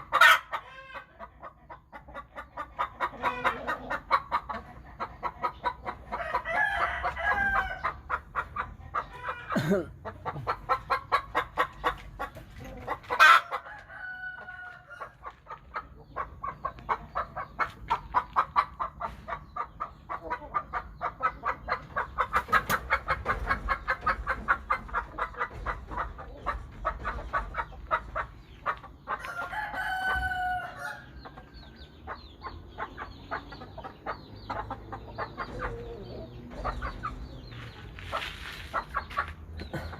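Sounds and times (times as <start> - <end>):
chickens clucking: 0.0 - 39.9
rooster crowing: 6.2 - 7.8, 13.5 - 15.0, 29.2 - 31.1.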